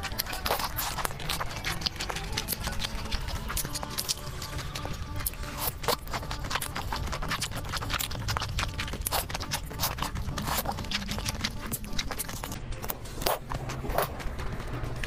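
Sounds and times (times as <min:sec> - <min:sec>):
wet chewing with mouth clicks: 0:00.0 - 0:14.3.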